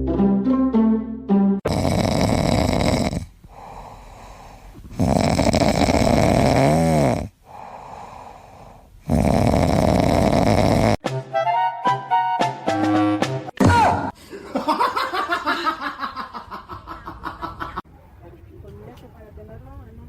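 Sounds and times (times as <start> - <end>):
loud rasping snoring: 1.7 - 4.1, 4.9 - 11.0
quiet breaths: 2.2 - 10.9.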